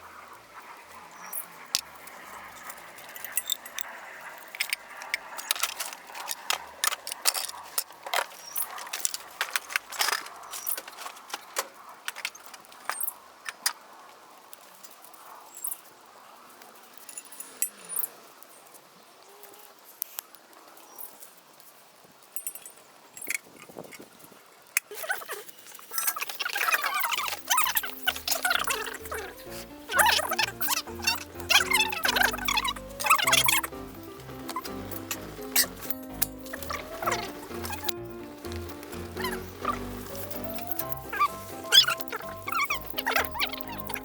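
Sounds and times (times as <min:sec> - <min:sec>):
campfire crackling: 0:00.5 - 0:12.8, 0:25.4 - 0:44.0.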